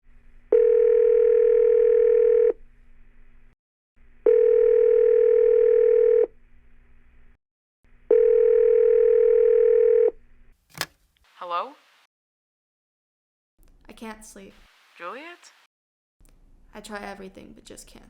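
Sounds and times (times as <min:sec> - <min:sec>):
telephone ringback tone: 0:00.5 - 0:02.6, 0:04.3 - 0:06.3, 0:08.1 - 0:10.2.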